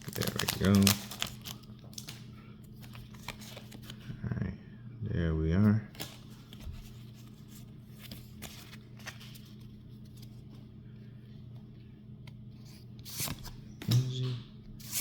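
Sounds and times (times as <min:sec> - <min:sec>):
foil pack being handled: 0:00.0 - 0:04.0
trading cards rustling and clicking: 0:00.0 - 0:04.0, 0:05.9 - 0:10.6
steady low hum: 0:00.0 - 0:15.0.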